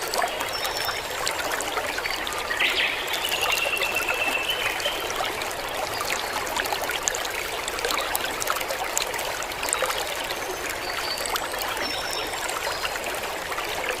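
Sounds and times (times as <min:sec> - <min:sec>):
water running and trickling: 0:00.0 - 0:14.0.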